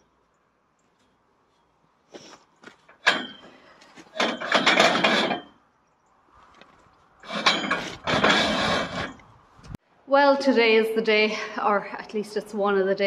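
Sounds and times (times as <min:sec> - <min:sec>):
rattling clatter: 0:02.9 - 0:05.6, 0:07.2 - 0:09.3.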